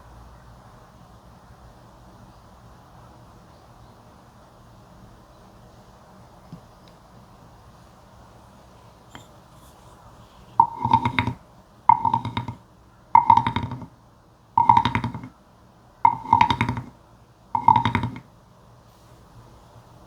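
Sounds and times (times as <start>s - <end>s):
toad croaking: 10.6s - 12.6s, 13.2s - 13.9s, 14.6s - 15.3s, 16.0s - 16.9s, 17.6s - 18.2s.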